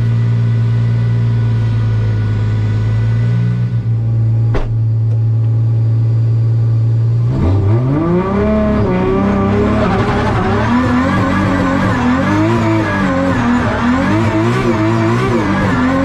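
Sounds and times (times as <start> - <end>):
drift car engine revving: 7.3 - 16.0.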